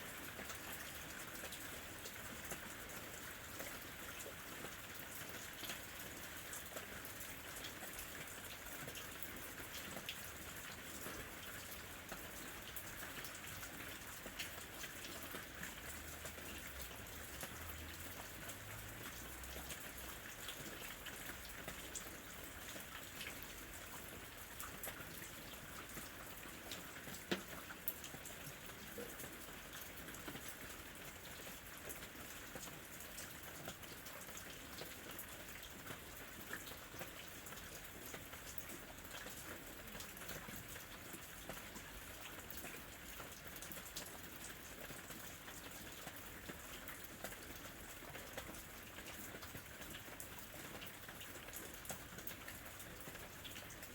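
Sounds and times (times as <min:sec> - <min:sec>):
steady rain falling: 0:00.0 - 0:53.9
raindrop ticks: 0:26.7 - 0:29.3.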